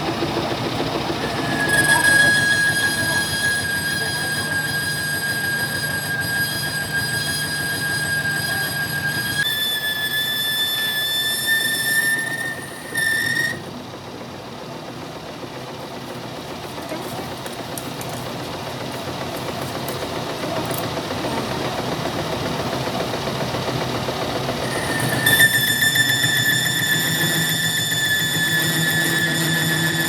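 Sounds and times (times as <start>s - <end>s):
noisy machine running: 0.0s - 30.0s
metal-on-metal squeal: 1.2s - 13.8s, 24.6s - 30.0s.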